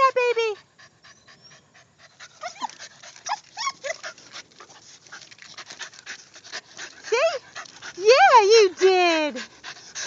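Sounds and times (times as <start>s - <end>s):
dog whimpering: 0.4s - 4.2s.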